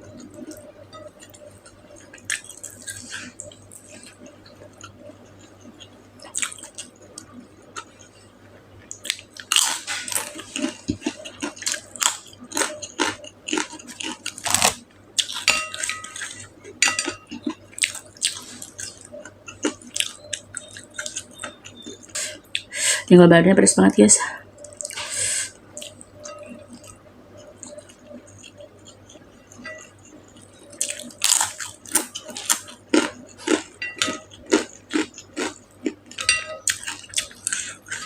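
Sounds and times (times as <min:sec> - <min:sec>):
chewing and biting food: 0:08.9 - 0:16.4, 0:27.6 - 0:38.0.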